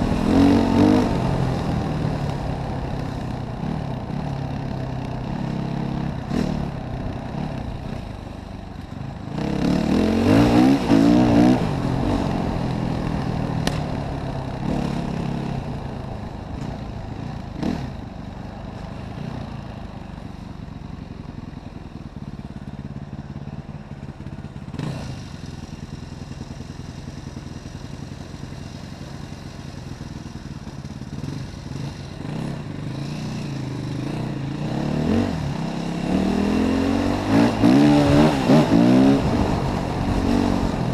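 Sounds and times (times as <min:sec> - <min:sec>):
dirt bike engine revving: 0:00.0 - 0:04.3, 0:05.2 - 0:08.0, 0:09.3 - 0:15.8, 0:31.2 - 0:40.9.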